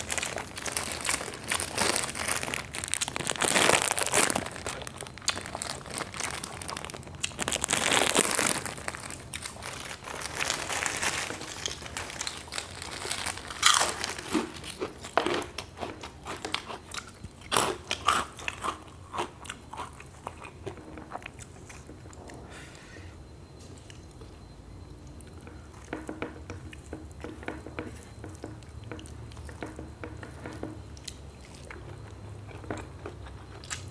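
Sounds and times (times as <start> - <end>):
plastic bag crinkling: 0.0 - 16.7
crunching crispy crackers: 0.0 - 22.2, 28.4 - 33.9.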